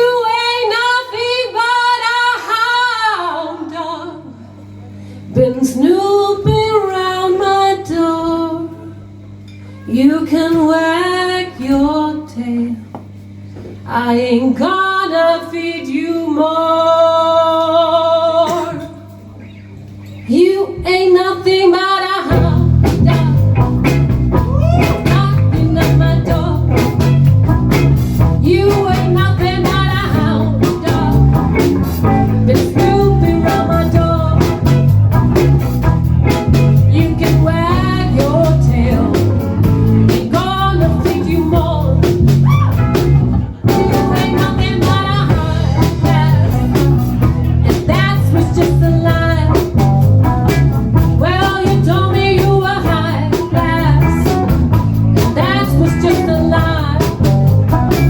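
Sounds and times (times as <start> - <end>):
blues band playing: 22.3 - 58.0
wavering electric guitar lead: 22.3 - 58.0.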